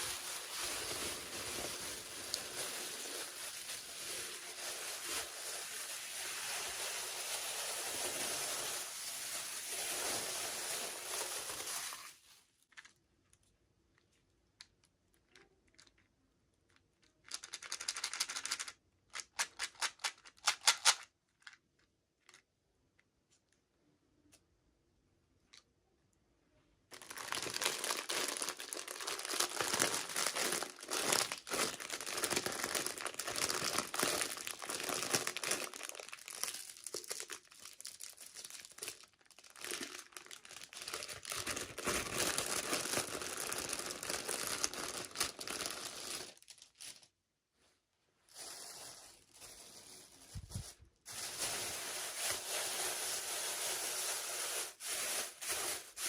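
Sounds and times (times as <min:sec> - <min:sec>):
plastic packaging crinkling: 0:00.0 - 0:13.4, 0:26.9 - 0:47.2, 0:48.3 - 0:56.0.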